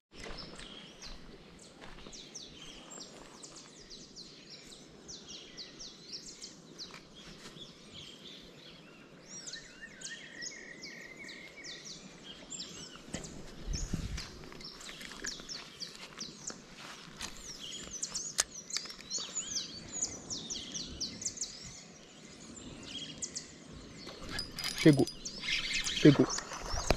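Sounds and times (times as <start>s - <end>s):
birds chirping: 0.1s - 26.9s.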